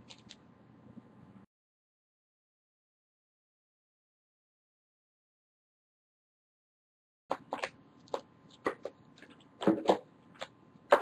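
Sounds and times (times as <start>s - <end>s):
cards being handled: 0.0s - 0.4s.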